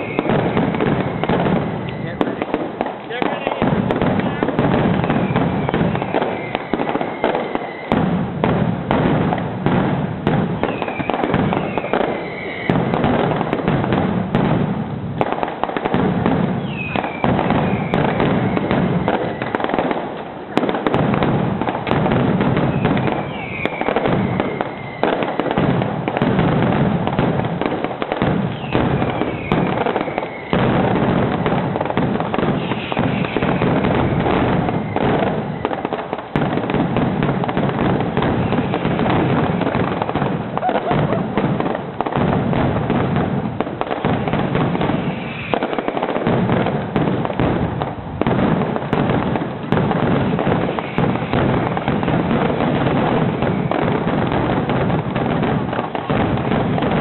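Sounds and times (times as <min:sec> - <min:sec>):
fireworks bangs and crackles: 0:00.0 - 0:57.0
falling whistle: 0:05.3 - 0:07.9, 0:10.7 - 0:12.8, 0:23.2 - 0:25.0.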